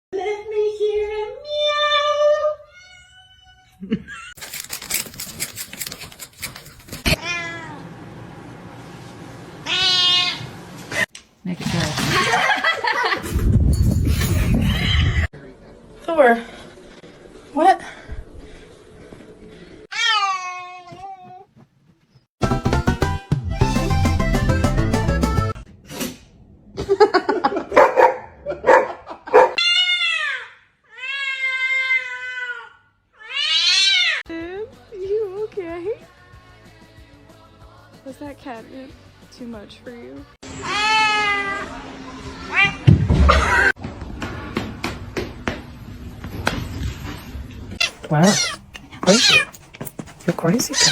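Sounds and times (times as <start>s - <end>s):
rapid clicks and scratching: 4.4s - 7.2s
cat meowing: 7.1s - 7.8s, 9.6s - 10.5s, 30.9s - 34.2s, 47.8s - 49.6s, 50.6s - 50.9s
cat harsh short calls: 47.8s - 49.6s.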